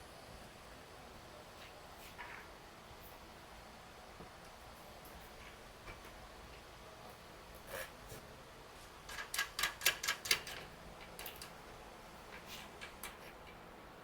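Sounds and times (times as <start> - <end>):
tools and bike parts clicking: 9.1 - 11.6.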